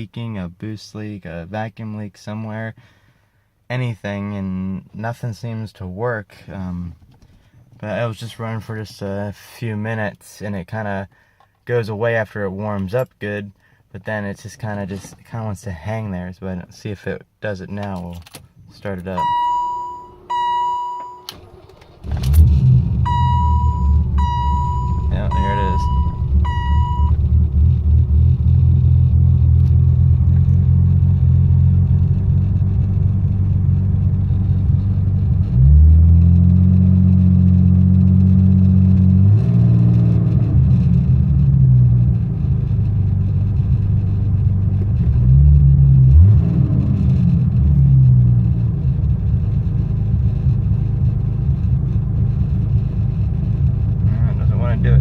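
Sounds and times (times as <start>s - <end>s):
electronic beep: 19.2s - 21.3s, 23.1s - 27.2s
engine revving: 21.4s - 42.1s, 45.0s - 48.3s
car engine idling rough: 21.5s - 35.7s, 41.0s - 46.3s, 47.0s - 55.0s.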